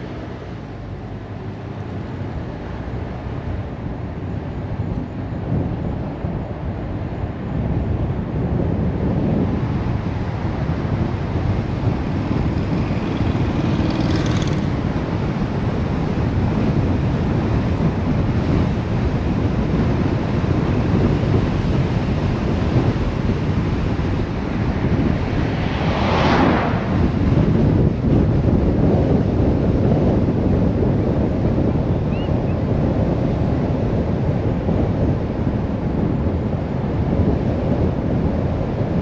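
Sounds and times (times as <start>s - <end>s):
car road and wind noise: 0.0s - 39.0s
vehicle swishing past: 12.0s - 14.8s, 24.1s - 28.3s.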